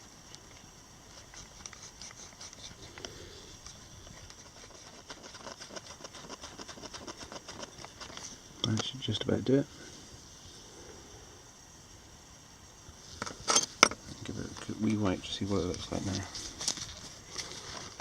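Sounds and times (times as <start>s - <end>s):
cotton swab scratchy rubbing: 4.4s - 8.2s.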